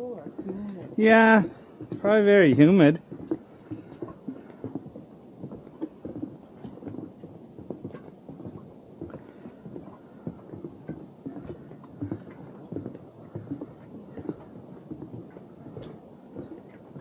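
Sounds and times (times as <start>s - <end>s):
footsteps on wooden boardwalk: 0.0s - 17.0s.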